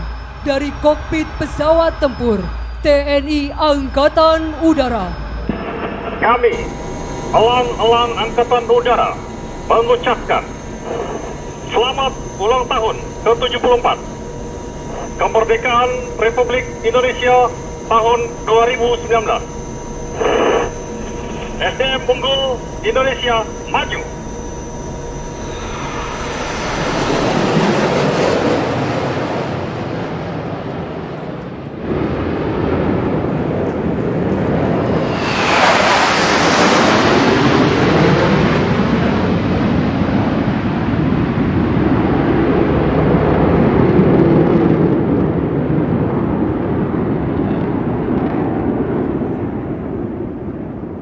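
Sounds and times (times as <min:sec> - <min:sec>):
jet fighters passing overhead: 0:25.7 - 0:51.0.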